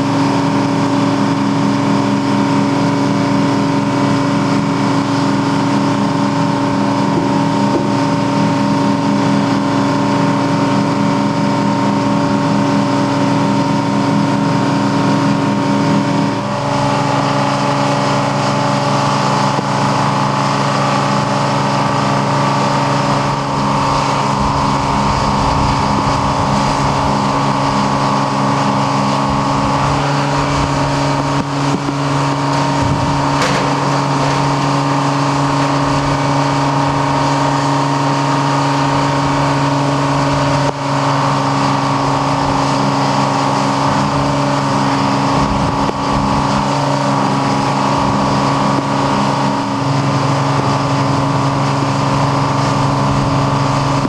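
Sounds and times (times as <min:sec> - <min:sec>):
engine droning: 0:00.0 - 0:54.0
low rumble: 0:16.2 - 0:42.7.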